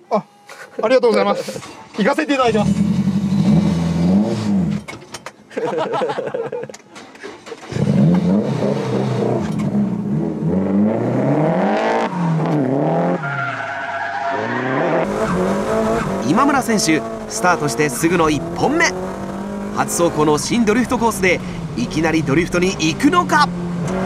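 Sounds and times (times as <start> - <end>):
car engine revving hard: 2.5 - 4.8, 7.7 - 13.3, 14.3 - 24.0.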